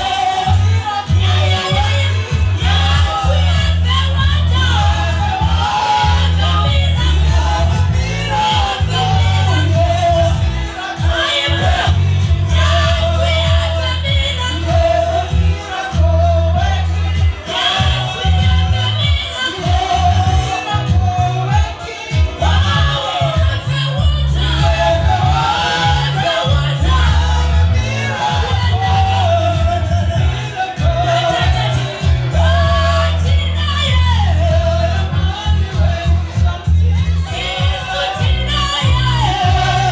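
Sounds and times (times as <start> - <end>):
busy drum beat: 0.0 - 39.9
loud held bass notes: 0.0 - 39.9
voices singing worship music: 0.0 - 39.9.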